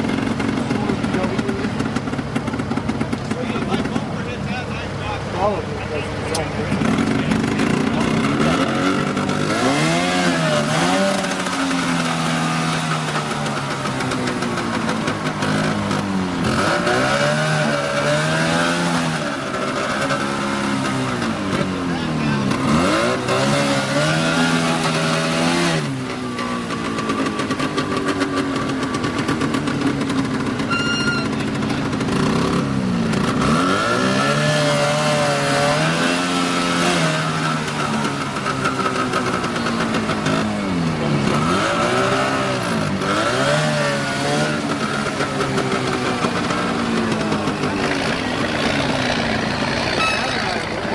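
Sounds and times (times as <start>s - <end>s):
vehicle engine revving: 0.0s - 50.9s
high-pitched tone: 30.7s - 31.4s, 49.9s - 50.6s.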